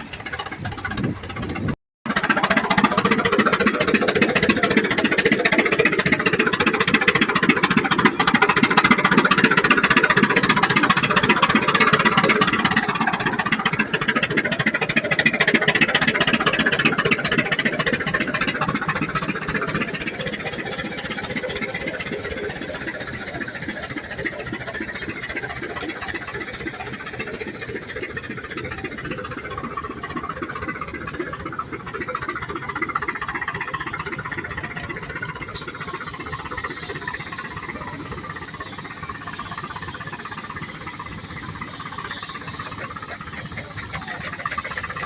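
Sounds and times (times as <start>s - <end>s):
tractor engine running: 0.0s - 45.0s
high hiss: 34.5s - 45.0s.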